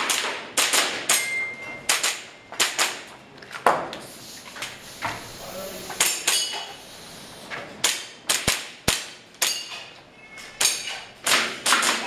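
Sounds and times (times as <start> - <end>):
airsoft pistol shots: 7.8 - 9.2.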